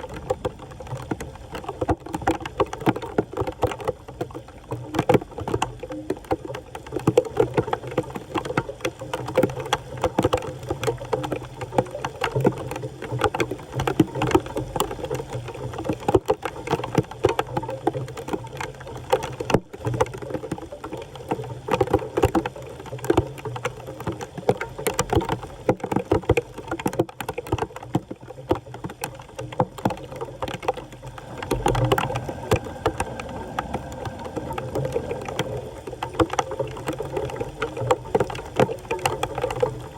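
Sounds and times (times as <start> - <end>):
water sloshing and splashing: 28.8 - 39.9.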